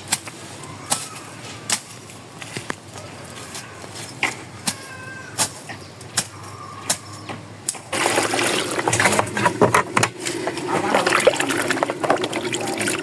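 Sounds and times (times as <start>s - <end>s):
liquid pouring into a pot: 7.9s - 13.0s.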